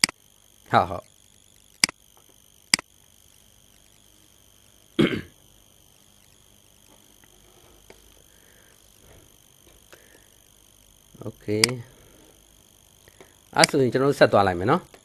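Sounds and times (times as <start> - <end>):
sharp click: 0.0 - 0.2, 1.8 - 2.9, 11.6 - 11.8
person coughing: 5.0 - 5.4.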